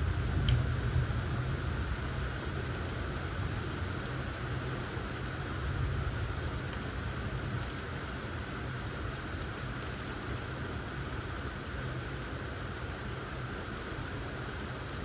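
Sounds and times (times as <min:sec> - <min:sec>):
distant thunder rumble: 0:00.0 - 0:02.8.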